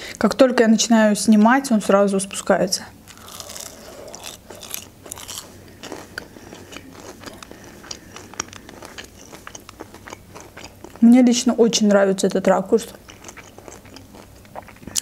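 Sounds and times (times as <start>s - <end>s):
person chewing onion ring crunches: 3.1s - 11.0s, 12.9s - 15.0s.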